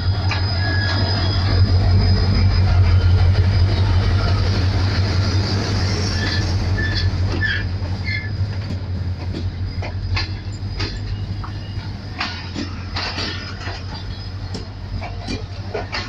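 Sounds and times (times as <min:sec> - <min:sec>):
locomotive engine droning: 0:00.0 - 0:16.0
train wheels squealing: 0:00.0 - 0:16.0
wheels clicking over track: 0:06.2 - 0:16.0.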